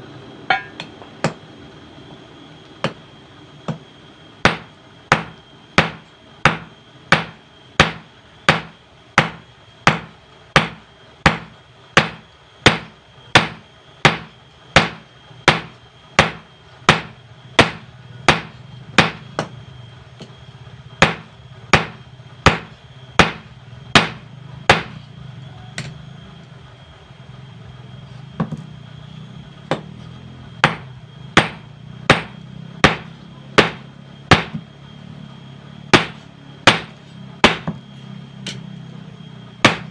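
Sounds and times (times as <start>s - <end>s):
low steady hum: 0.0s - 39.9s
hammer striking steel on anvil: 0.5s - 1.4s, 4.5s - 19.6s, 21.0s - 25.0s, 30.6s - 34.6s, 35.9s - 37.8s, 39.6s - 39.9s.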